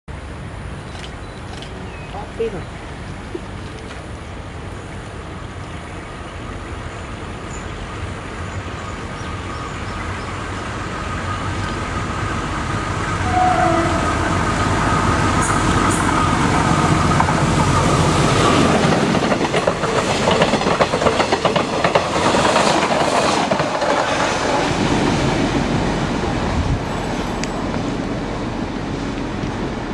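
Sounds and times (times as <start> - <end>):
diesel locomotive engine running: 2.2 - 29.9
train wheels clickety-clack: 15.3 - 25.2.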